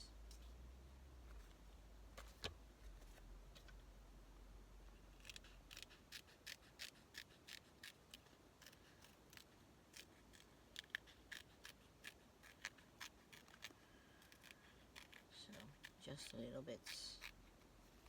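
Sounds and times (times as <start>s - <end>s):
scissors snipping paper: 5.2s - 17.4s.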